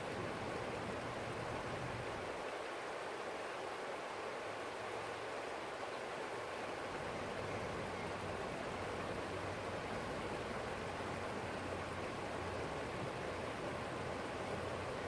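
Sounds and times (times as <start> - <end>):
stream flowing over stones: 0.0 - 15.0.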